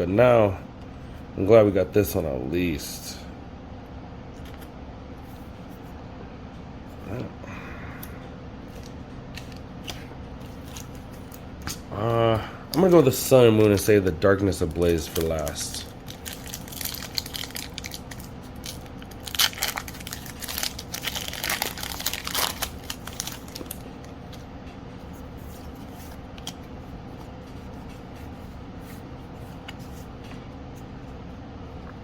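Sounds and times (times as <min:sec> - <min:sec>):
faint steady hum: 0:00.0 - 0:32.0
foil wrapper tearing and crinkling: 0:14.7 - 0:23.9.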